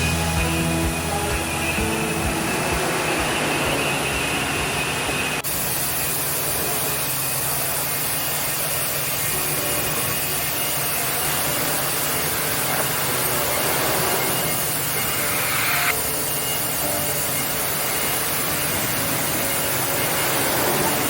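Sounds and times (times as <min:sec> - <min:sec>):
steady mechanical noise: 0:00.0 - 0:21.0
low hum: 0:11.9 - 0:16.2.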